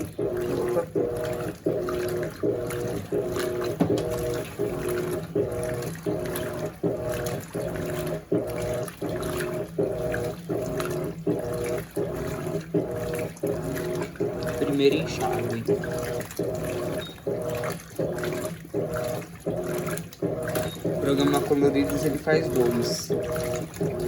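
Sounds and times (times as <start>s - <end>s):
washing machine motor humming: 0.0s - 24.0s
water sloshing: 0.0s - 24.0s.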